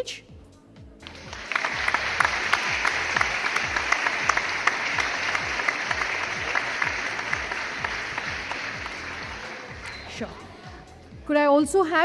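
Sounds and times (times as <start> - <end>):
audience applauding: 1.0 - 10.2.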